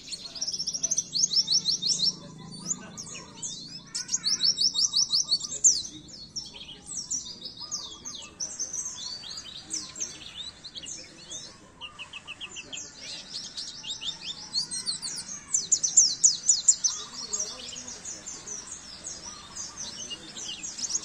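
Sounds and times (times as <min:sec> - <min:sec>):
white-eye singing high twittering song: 0:00.0 - 0:21.0.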